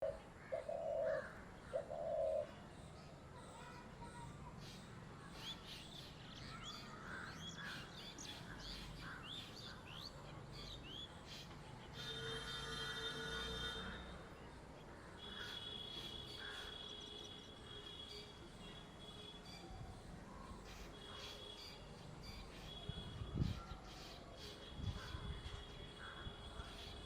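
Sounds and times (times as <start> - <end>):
dove cooing: 0.0 - 2.6.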